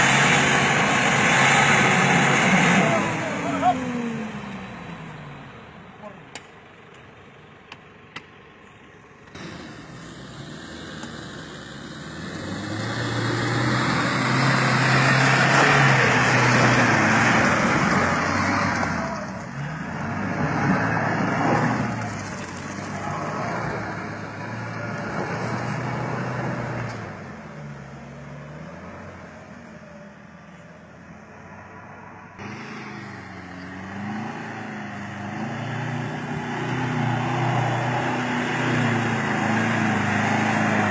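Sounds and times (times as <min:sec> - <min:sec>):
pickup truck engine revving: 0:00.0 - 0:05.8, 0:09.3 - 0:29.6, 0:32.4 - 0:40.9.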